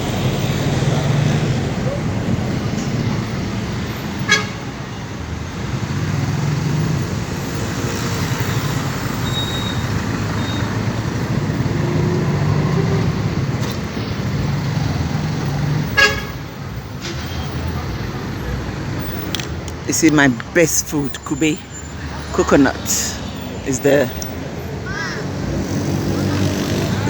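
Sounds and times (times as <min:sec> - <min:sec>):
road and wind noise: 0:00.0 - 0:27.0
vehicle horn toot: 0:04.3 - 0:04.6, 0:16.0 - 0:16.4.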